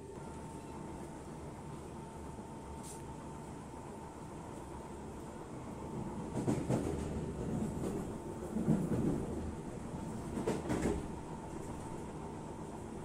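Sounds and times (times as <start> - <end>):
train rumble inside carriage: 0.0 - 13.0
clacks and knocks: 10.3 - 11.1.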